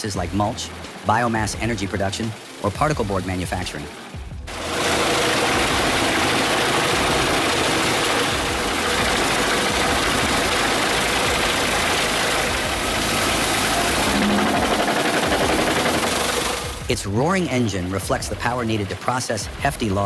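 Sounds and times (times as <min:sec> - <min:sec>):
wood chipper running: 0:04.5 - 0:19.1.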